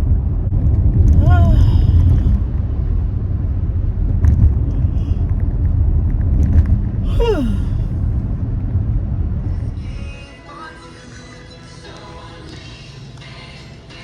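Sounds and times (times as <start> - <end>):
car cabin road and engine noise: 0.0 - 10.2.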